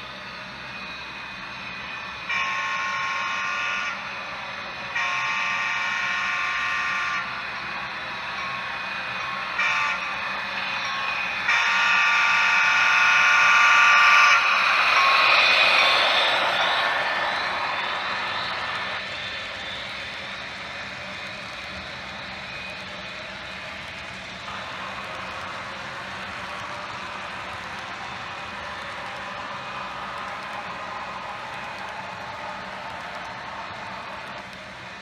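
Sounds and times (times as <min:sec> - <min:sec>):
model locomotive horn blasts: 0:02.2 - 0:19.0
rushing noise: 0:12.5 - 0:35.0.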